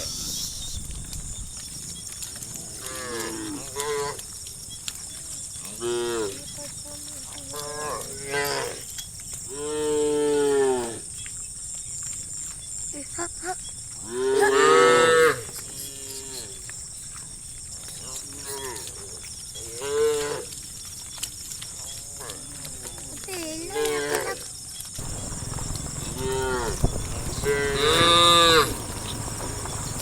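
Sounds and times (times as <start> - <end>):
cattle mooing: 2.7 - 4.2, 7.5 - 8.8, 25.0 - 30.0.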